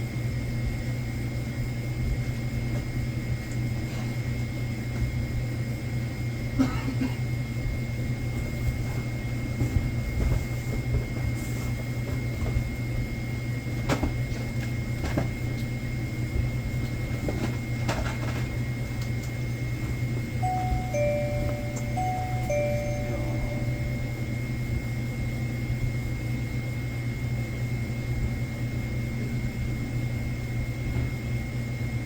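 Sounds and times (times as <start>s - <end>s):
held electronic tones: 20.4s - 24.6s
faint high whine: 20.4s - 24.9s
electrical hum: 20.4s - 25.8s.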